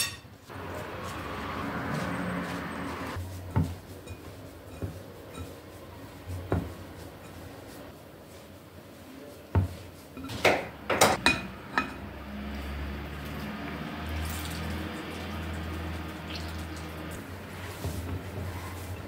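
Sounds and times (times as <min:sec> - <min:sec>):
dishes and cutlery clinking: 0:00.0 - 0:00.4, 0:03.6 - 0:05.7, 0:06.5 - 0:07.6, 0:10.1 - 0:12.1.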